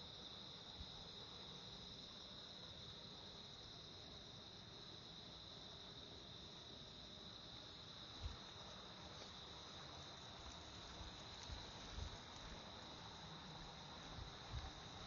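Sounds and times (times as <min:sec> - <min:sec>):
insects chirring: 0:00.0 - 0:15.0
soft footsteps: 0:08.1 - 0:12.7.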